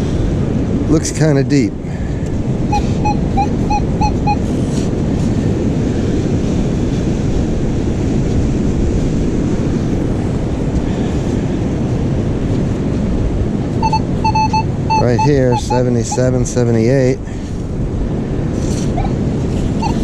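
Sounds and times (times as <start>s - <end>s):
beach surf: 0.0s - 20.0s
wind on microphone: 0.0s - 20.0s
metal detector beeps: 2.7s - 4.4s, 13.8s - 16.3s, 19.8s - 20.0s.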